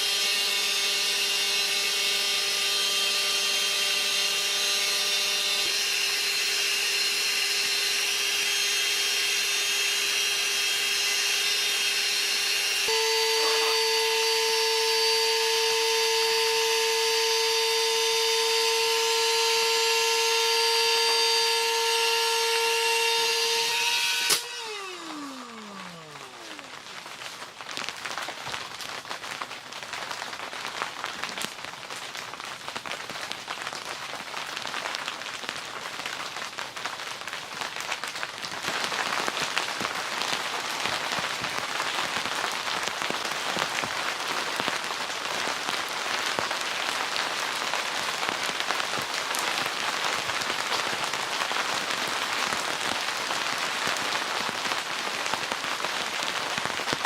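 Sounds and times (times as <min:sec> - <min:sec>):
steady rain falling: 0:25.2 - 0:57.0.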